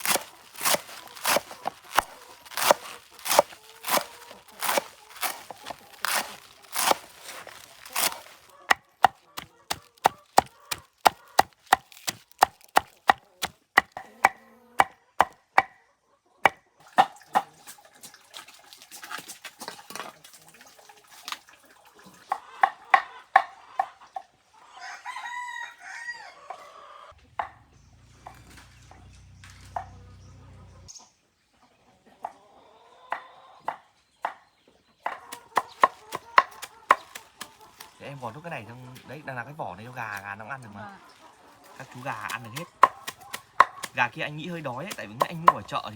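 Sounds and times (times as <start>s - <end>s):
knife chopping on wooden board: 0.0s - 15.7s, 35.1s - 37.5s, 42.2s - 44.0s.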